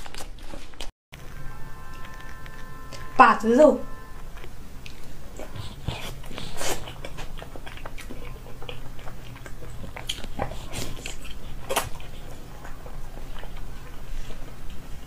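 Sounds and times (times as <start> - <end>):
chewing soft meat: 4.2 - 15.0
mouth smacks: 4.9 - 12.8.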